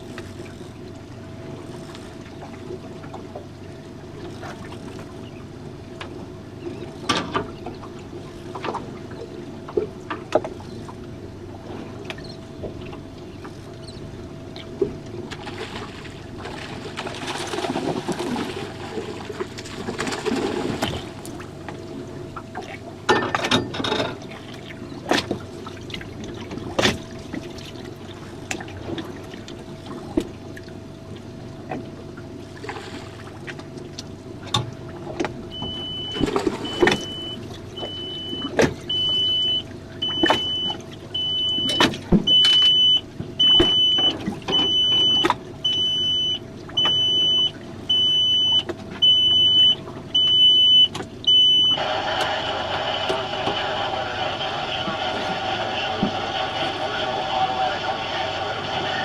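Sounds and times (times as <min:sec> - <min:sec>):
knocks and clatter on boat: 0:00.0 - 0:39.4, 0:40.0 - 0:51.3
faint hum: 0:00.0 - 0:59.0
high electronic beep: 0:35.6 - 0:51.8.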